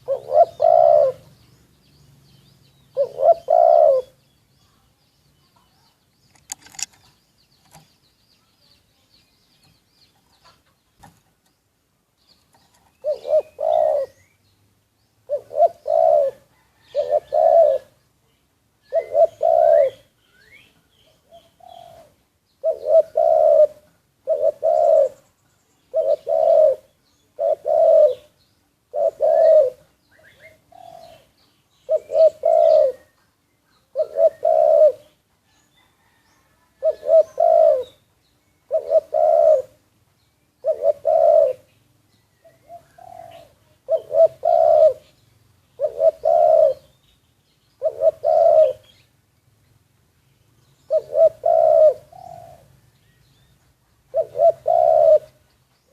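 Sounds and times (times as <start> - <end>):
dove cooing: 0.0 - 1.4, 2.9 - 4.2, 12.5 - 14.3, 15.2 - 18.0, 18.8 - 25.2, 25.8 - 33.2, 33.8 - 39.9, 40.6 - 41.8, 42.4 - 47.0, 47.8 - 49.1, 50.8 - 52.8, 54.0 - 55.4
small birds chirping: 0.0 - 55.9.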